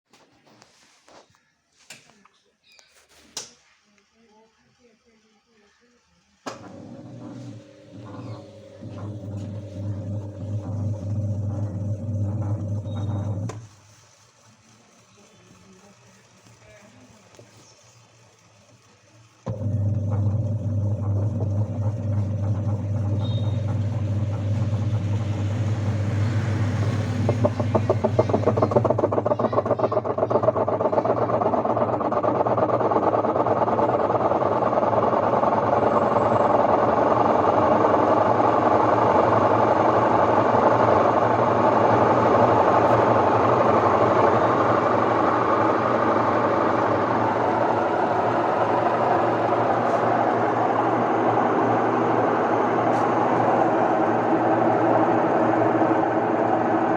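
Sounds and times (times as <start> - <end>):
washing machine motor hum: 3.4 - 56.9
fast rhythmic pulsing whirring: 4.1 - 56.9.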